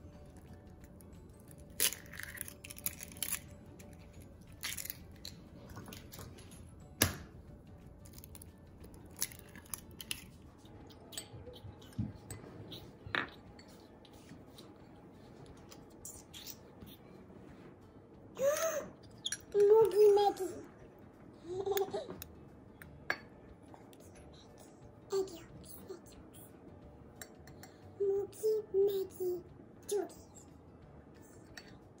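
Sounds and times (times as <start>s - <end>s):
eggshells cracking: 1.5s - 6.2s, 8.0s - 10.4s.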